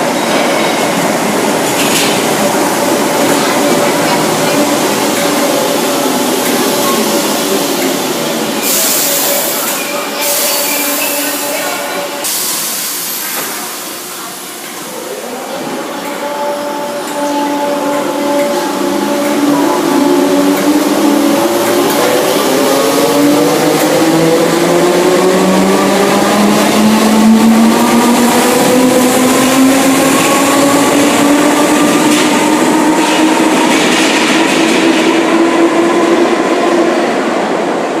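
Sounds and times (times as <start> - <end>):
train hiss: 6.2 - 15.1.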